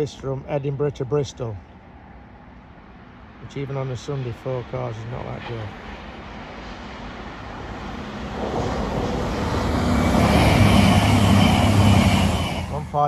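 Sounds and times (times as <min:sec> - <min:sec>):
diesel train passing: 0:01.4 - 0:13.0
high whine: 0:03.4 - 0:13.0.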